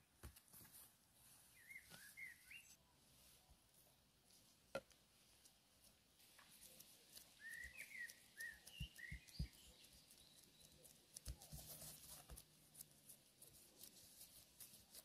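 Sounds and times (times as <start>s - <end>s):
bird chirps: 1.4s - 2.8s, 7.1s - 11.2s.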